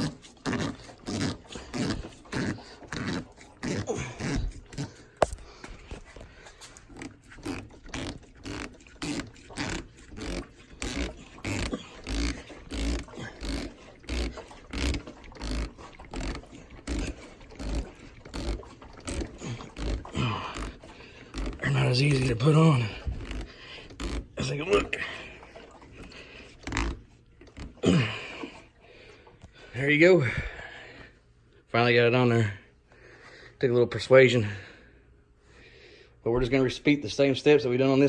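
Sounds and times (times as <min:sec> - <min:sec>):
rubber grip squeaking on handlebar: 0:00.0 - 0:25.0, 0:25.9 - 0:27.9.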